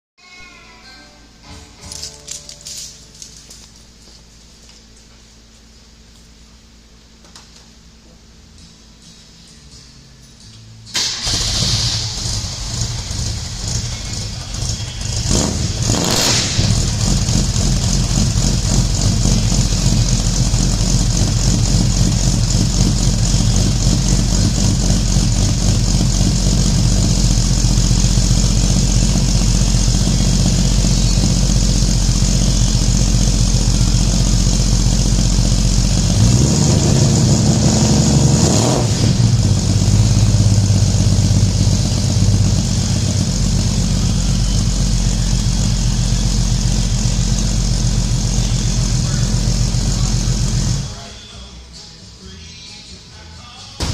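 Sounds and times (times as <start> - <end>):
car engine idling: 10.9 - 51.2
car engine revving: 11.0 - 50.9.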